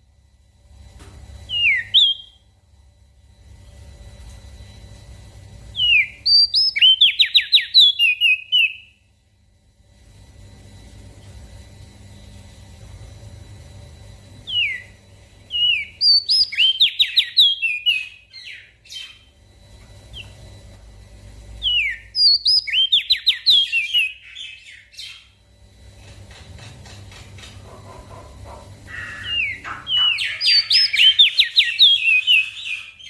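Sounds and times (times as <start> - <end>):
low steady hum: 0.0 - 33.0
small songbird singing: 1.5 - 2.4, 5.7 - 9.0, 14.5 - 19.3, 21.6 - 25.4, 28.9 - 33.0.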